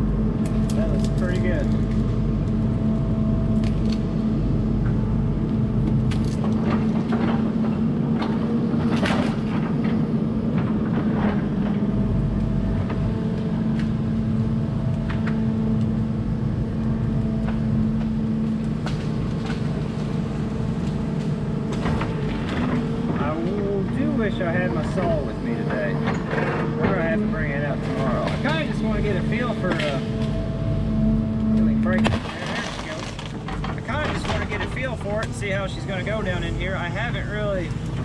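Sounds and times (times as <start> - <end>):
excavator diesel engine running: 0.0 - 38.0
cracks and knocks of wood: 5.8 - 14.0, 17.2 - 24.1, 29.6 - 30.4, 31.9 - 35.5.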